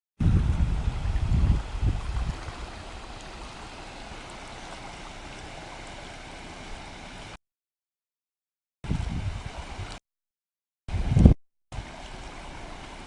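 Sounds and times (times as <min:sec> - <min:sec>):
floodwater rushing: 0:00.2 - 0:07.4, 0:08.9 - 0:10.0, 0:10.9 - 0:13.0.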